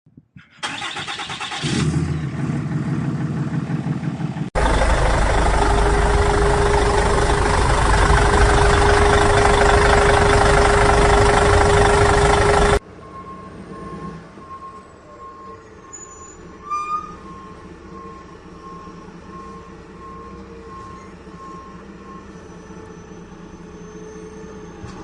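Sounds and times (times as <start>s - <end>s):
vehicle engine running: 2.1s - 12.8s
rushing noise: 4.6s - 12.8s.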